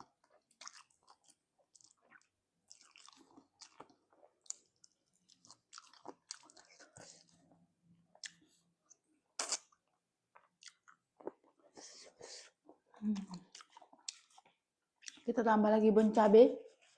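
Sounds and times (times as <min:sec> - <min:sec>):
person chewing: 0:00.0 - 0:15.3
wet mouth clicks: 0:09.4 - 0:09.8.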